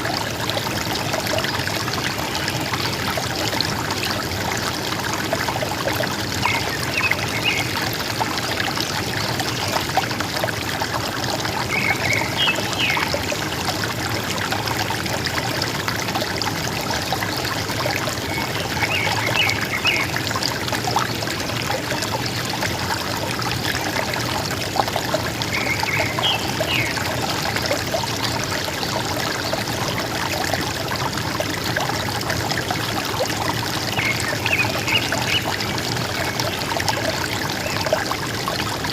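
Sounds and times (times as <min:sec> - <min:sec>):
river water gurgling: 0:00.0 - 0:38.9.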